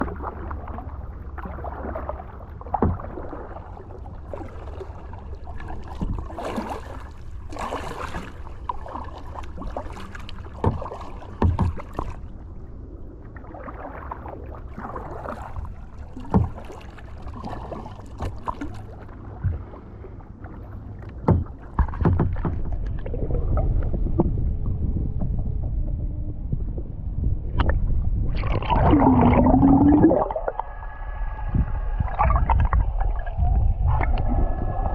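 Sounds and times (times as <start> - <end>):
paddle splashing in water: 0.0 - 12.3, 13.3 - 24.3, 28.4 - 30.6
steady low rumble: 0.0 - 34.9.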